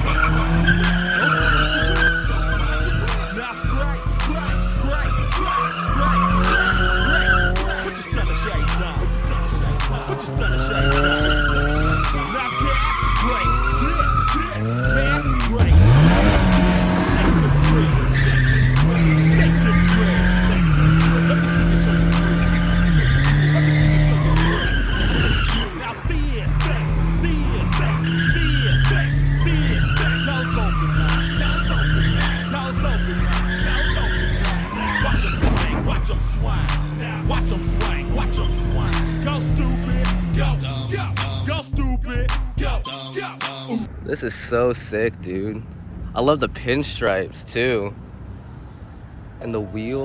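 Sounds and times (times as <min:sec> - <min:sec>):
car engine revving: 0:00.0 - 0:50.0
car tyres squealing: 0:00.0 - 0:50.0
music with a steady beat: 0:01.9 - 0:12.3, 0:13.1 - 0:18.1, 0:25.4 - 0:28.1, 0:35.4 - 0:38.2, 0:38.8 - 0:43.8.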